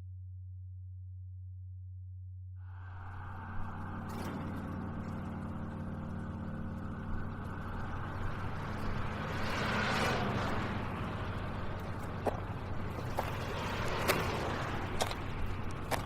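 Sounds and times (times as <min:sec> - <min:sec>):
low droning bass hum: 0:00.0 - 0:09.6.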